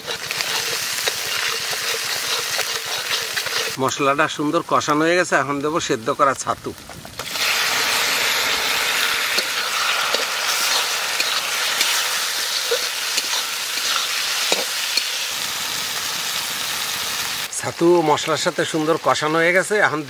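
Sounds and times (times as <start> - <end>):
spatula scraping a pan: 0.0 - 3.8, 7.4 - 15.2
mushrooms sizzling in hot oil: 0.0 - 20.0.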